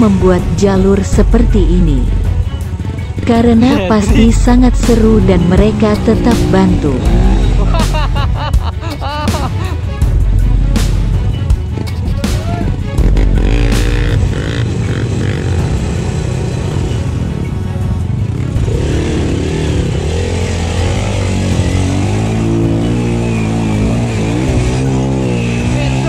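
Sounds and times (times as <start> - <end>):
background music: 0.0 - 26.0
dirt bike engine revving: 3.1 - 8.4, 12.9 - 17.3, 18.2 - 26.0.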